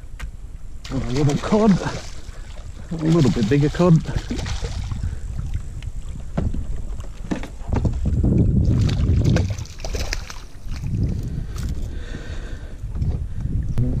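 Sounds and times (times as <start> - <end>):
wind buffeting microphone: 0.0 - 14.0
small knocks in kayak: 5.8 - 8.2.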